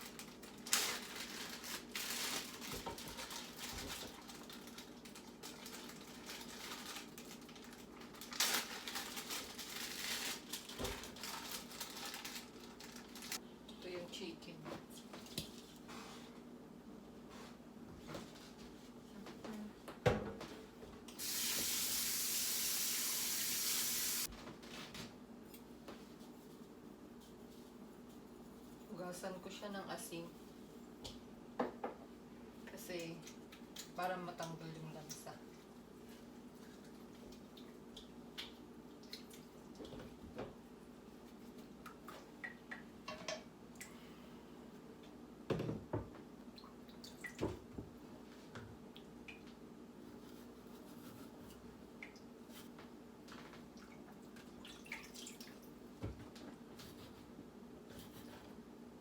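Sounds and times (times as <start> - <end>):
kitchen tap running into sink: 21.2 - 24.3
water splashing and dripping: 53.7 - 55.7.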